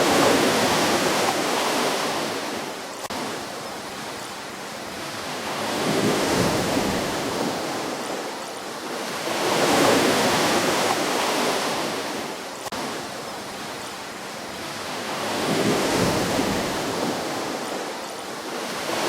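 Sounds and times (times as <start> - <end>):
waves breaking on shore: 0.0 - 19.0.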